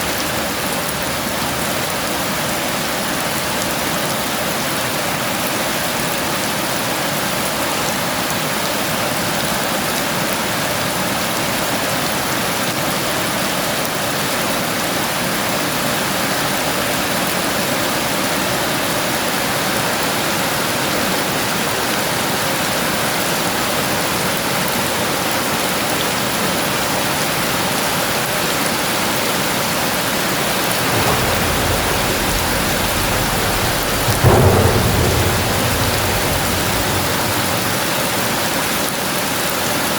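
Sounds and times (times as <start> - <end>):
heavy rain pouring: 30.0 - 39.9
thunder rumbling and cracking: 30.4 - 39.0.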